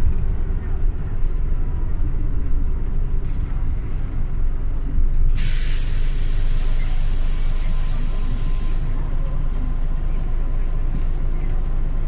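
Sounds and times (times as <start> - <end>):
bus engine rumble: 0.0 - 12.0
compressed air hiss: 5.4 - 8.9.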